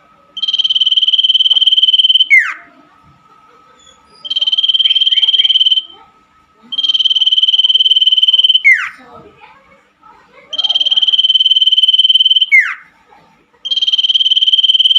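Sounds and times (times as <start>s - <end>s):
bird trilling: 0.4s - 2.7s, 4.2s - 5.9s, 6.7s - 9.0s, 10.6s - 12.9s, 13.7s - 14.9s.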